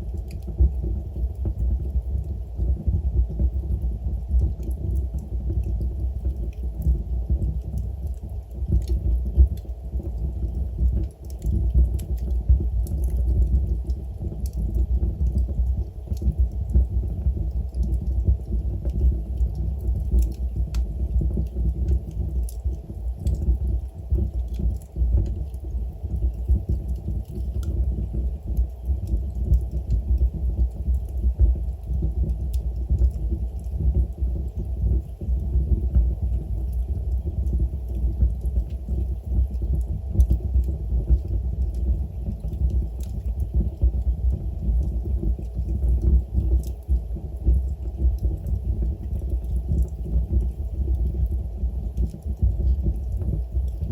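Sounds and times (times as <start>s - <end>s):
wood crackling and popping: 0.0s - 53.9s.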